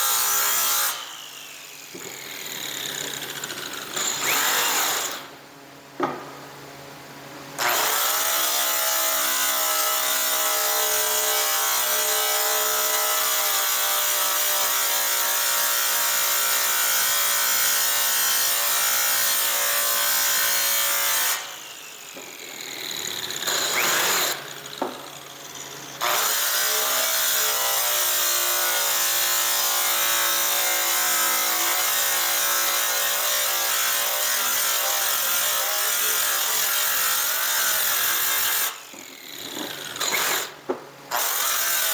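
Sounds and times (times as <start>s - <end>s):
electric power tool polishing metal: 16.4s - 41.9s.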